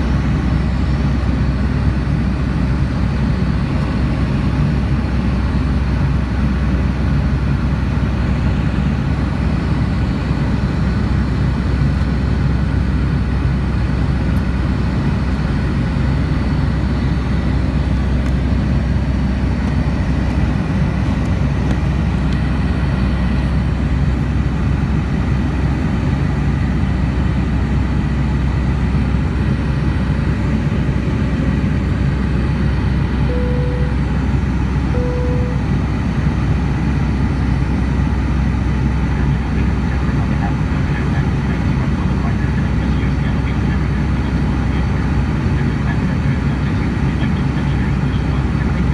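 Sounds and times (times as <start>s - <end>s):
aircraft cabin engine rumble: 0.0s - 48.9s
short beep: 33.3s - 34.2s, 34.9s - 35.7s.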